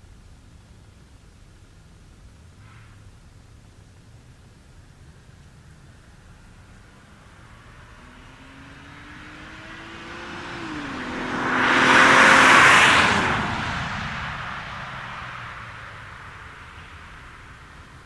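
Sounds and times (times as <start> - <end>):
car exhaust accelerating past: 5.2 - 18.0.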